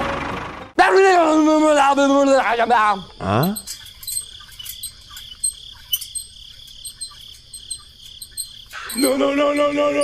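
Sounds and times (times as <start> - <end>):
insects trilling: 0.9 - 10.0
person speaking: 1.4 - 3.7, 8.8 - 10.0.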